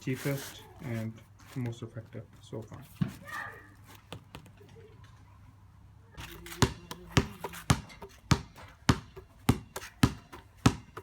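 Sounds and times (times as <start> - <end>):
ball bouncing on hard floor: 6.2 - 11.0.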